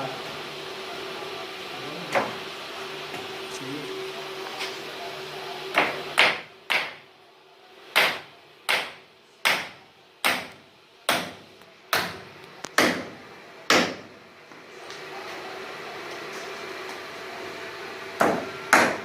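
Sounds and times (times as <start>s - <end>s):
hammer striking wood: 5.8s - 7.0s, 7.9s - 12.2s, 12.8s - 14.1s, 18.2s - 19.0s.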